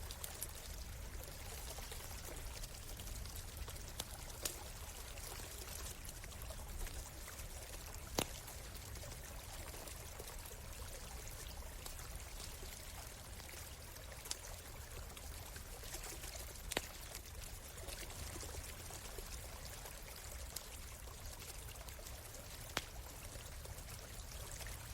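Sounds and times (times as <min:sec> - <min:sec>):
campfire crackling and popping: 0:00.0 - 0:24.9
stream flowing: 0:00.0 - 0:24.9.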